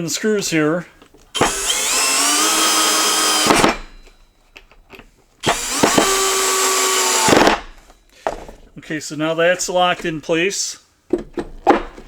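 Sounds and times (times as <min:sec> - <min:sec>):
power drill driving screws: 0:01.3 - 0:04.2, 0:05.4 - 0:08.0.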